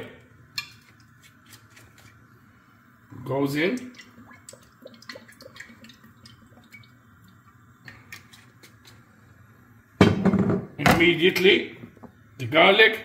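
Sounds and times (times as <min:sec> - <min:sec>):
oil dripping into a pan: 0:03.7 - 0:09.1.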